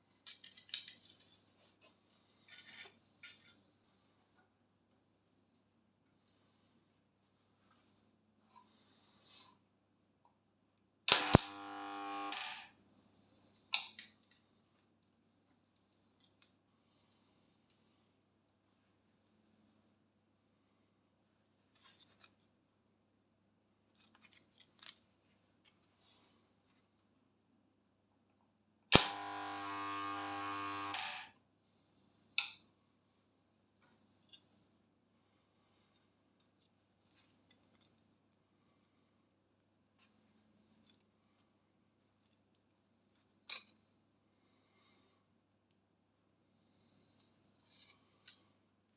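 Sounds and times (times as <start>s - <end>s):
spot welder crack: 11.1s - 12.6s, 28.9s - 31.3s
transformer buzzing hum: 11.1s - 12.7s, 29.0s - 31.3s.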